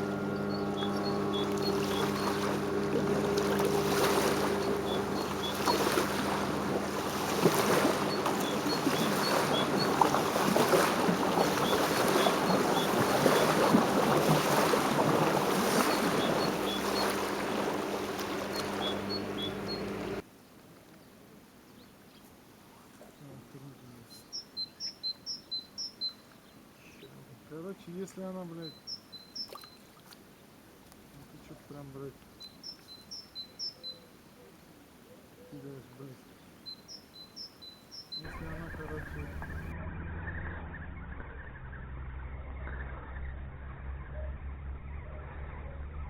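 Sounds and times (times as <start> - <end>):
motorboat engine humming: 0.0 - 20.2, 37.8 - 46.0
small bird chirping: 0.3 - 2.6, 4.4 - 6.4, 8.0 - 10.2, 15.7 - 20.2, 24.1 - 27.2, 28.6 - 29.9, 32.4 - 34.1, 36.6 - 46.0.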